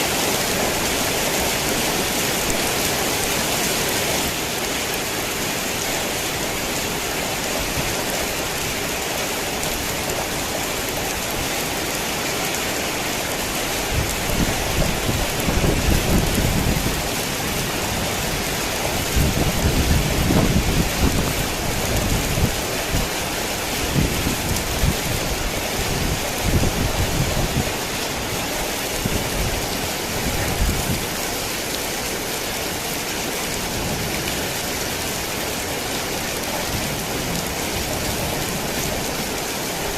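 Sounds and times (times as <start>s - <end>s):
heavy rain hissing: 0.0s - 39.9s
low rolling thunder: 17.9s - 22.6s.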